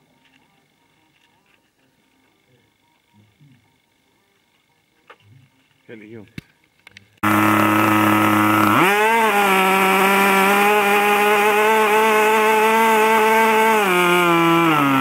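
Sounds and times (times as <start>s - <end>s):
model plane engine whining: 7.2s - 15.0s.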